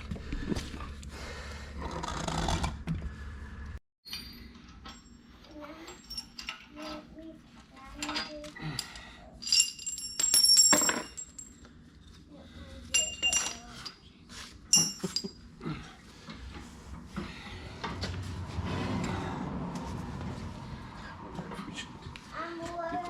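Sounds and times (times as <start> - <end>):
metal tools clinking: 5.8 - 7.0, 8.0 - 11.7, 12.9 - 14.1, 14.7 - 15.5.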